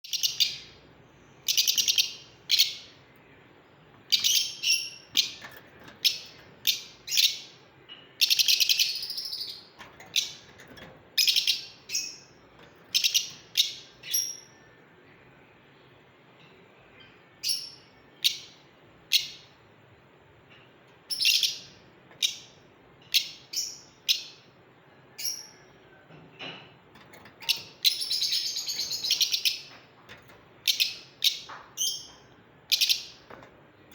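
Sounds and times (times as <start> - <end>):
lovebirds chirping and screeching: 4.0 - 14.5, 27.2 - 29.9, 30.6 - 33.2.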